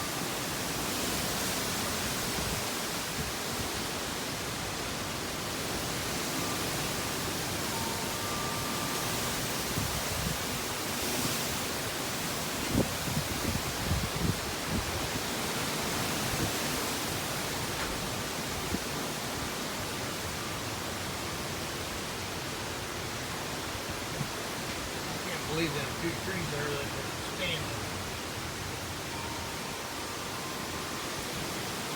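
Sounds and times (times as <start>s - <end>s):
wind buffeting microphone: 8.2s - 16.9s
strong wind blowing: 12.6s - 16.9s.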